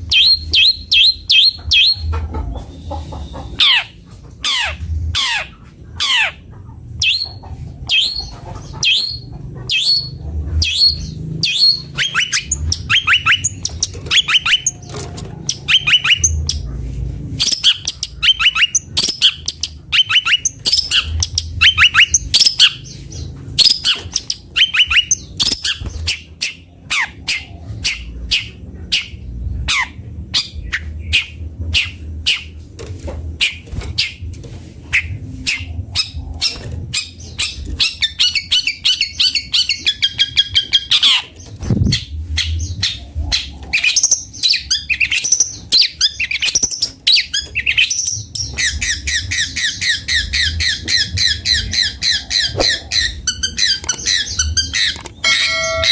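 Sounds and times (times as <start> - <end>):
low rumble: 0.0 - 18.4
shrike singing sharp notes: 55.2 - 55.9.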